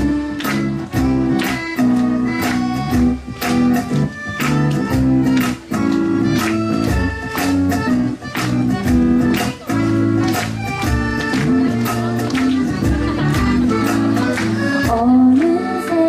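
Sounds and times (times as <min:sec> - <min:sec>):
live band playing: 0:00.0 - 0:16.0
person singing: 0:11.4 - 0:16.0.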